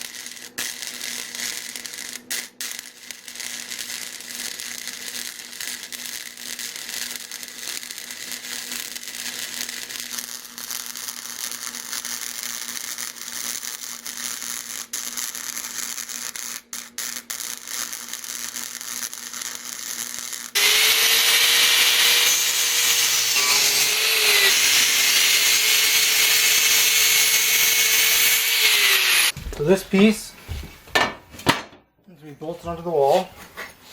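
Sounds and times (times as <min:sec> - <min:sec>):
electric power tool whining: 0:20.6 - 0:29.4.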